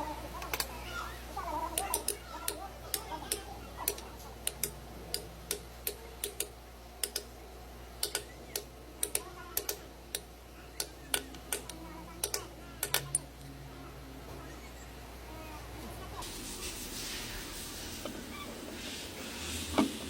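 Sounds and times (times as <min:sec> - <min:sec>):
faint low hum: 0:00.0 - 0:20.0
sharp clicks and taps: 0:01.8 - 0:07.3, 0:08.0 - 0:13.2.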